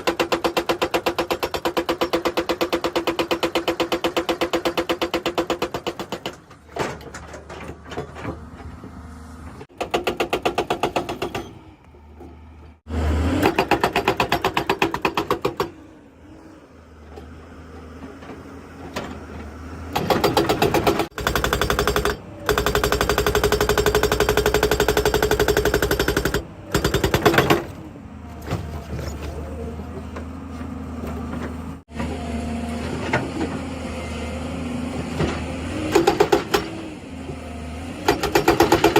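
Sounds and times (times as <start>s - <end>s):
hydraulic rock breaker hammering: 0.0s - 8.1s, 13.2s - 15.8s, 19.9s - 27.8s, 35.1s - 36.9s, 38.0s - 38.9s.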